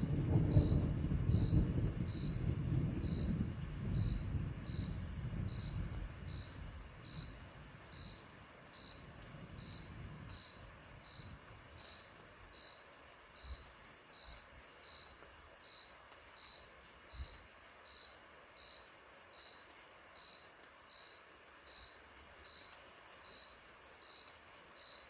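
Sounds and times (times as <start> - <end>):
distant thunder rumbling: 0.0 - 12.7
cricket chirping: 0.0 - 25.0.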